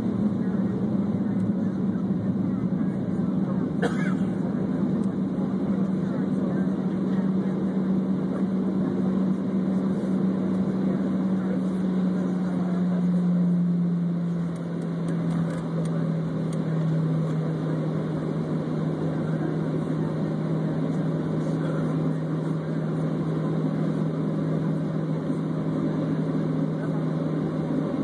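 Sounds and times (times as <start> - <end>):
jet engines droning: 0.0 - 28.0.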